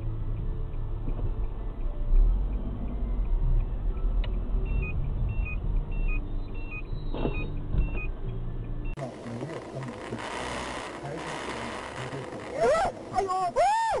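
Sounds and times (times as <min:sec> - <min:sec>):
car road and engine rumble: 0:00.0 - 0:14.0
short high electronic beeps: 0:04.6 - 0:08.1.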